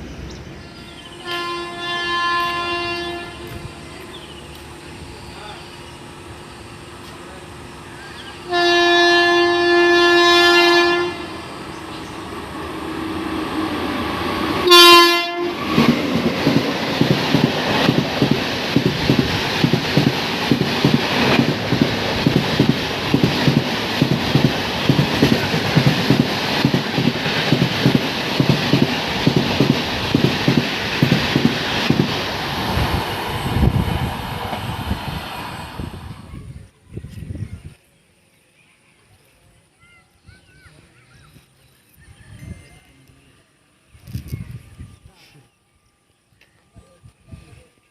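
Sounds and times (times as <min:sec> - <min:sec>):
train horn blasts: 0:00.8 - 0:04.0, 0:08.4 - 0:11.5, 0:14.6 - 0:16.0
train wheels clicking over rail joints: 0:15.6 - 0:33.8.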